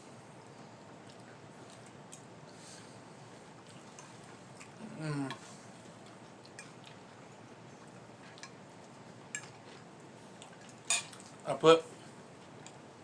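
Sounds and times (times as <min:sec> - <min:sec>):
cutlery clinking on dishes: 0:10.9 - 0:11.2.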